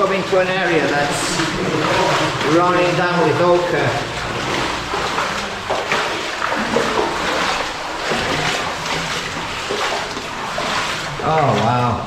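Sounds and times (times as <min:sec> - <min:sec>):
water splashing and running: 0:00.0 - 0:12.0.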